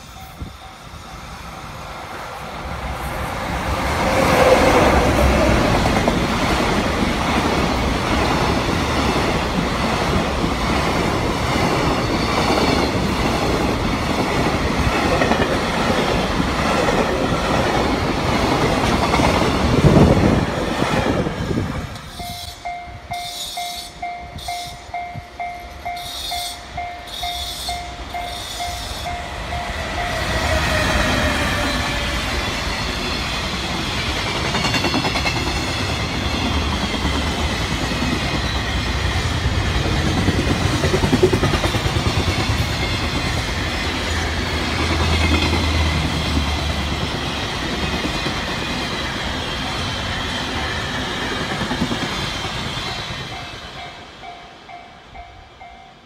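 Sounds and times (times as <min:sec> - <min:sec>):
bell-like chiming tone: 0:00.0 - 0:01.2
freight train passing: 0:00.0 - 0:56.0.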